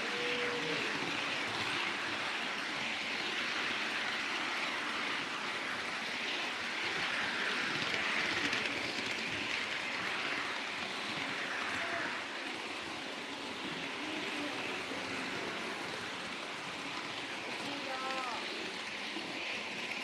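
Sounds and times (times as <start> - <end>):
train rolling on rails: 0.0 - 20.0.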